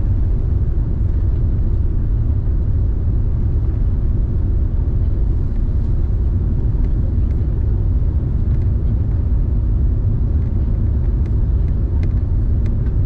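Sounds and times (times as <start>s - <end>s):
airliner cabin engine drone: 0.0s - 13.0s.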